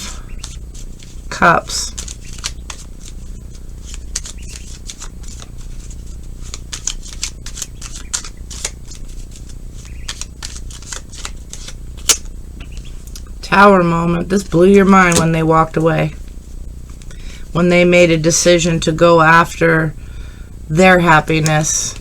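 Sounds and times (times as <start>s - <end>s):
cards being shuffled: 0.0s - 13.2s, 15.0s - 15.4s
low steady hum: 0.0s - 22.0s.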